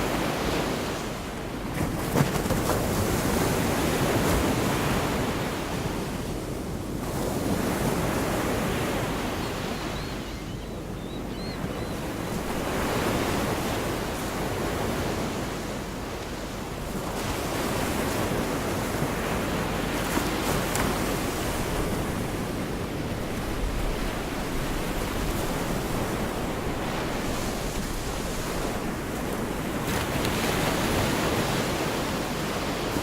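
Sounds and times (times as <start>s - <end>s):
small waves breaking on beach: 0.0s - 9.9s, 12.0s - 33.0s.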